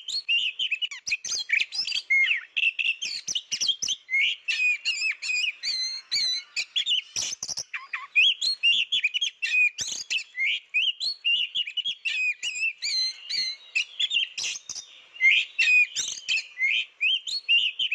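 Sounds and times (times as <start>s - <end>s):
bird singing whistles and chirps: 0.0s - 17.9s
sharp bird clicks: 6.7s - 8.2s, 9.4s - 10.2s, 12.4s - 14.9s.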